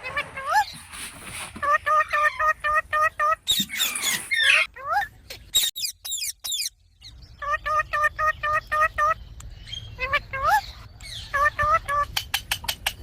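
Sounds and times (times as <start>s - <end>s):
parrot squawks: 1.6s - 6.7s.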